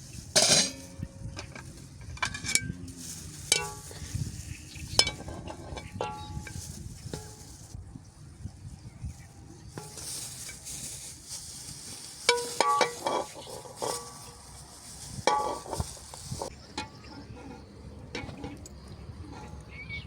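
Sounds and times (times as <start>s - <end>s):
metal utensil clinking on pan: 0.4s - 2.8s, 3.5s - 4.0s, 5.0s - 6.6s, 12.3s - 14.2s, 15.2s - 17.5s.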